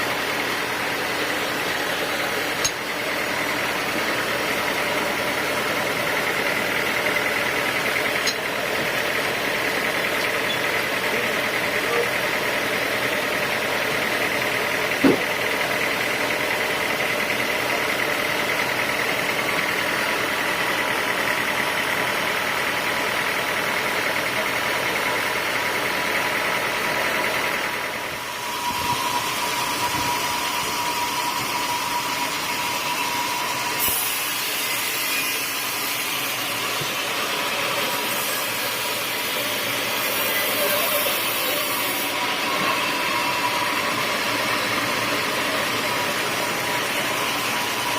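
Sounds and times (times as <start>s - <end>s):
band sawmill whine: 0.0s - 47.9s
sharp knock: 15.0s - 15.3s.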